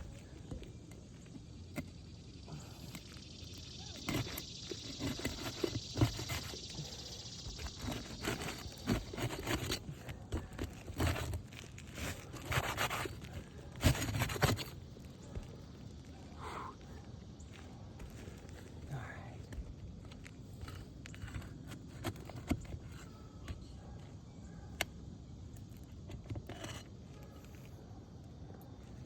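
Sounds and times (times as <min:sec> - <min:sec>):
roof shingle scraping and clicking: 0:02.9 - 0:16.0, 0:19.4 - 0:24.1, 0:25.6 - 0:27.7.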